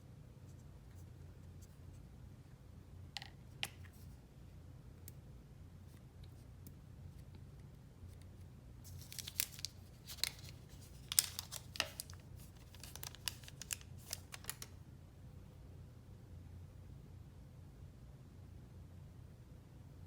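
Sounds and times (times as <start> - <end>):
packaging crinkling and tearing: 8.9 - 14.8.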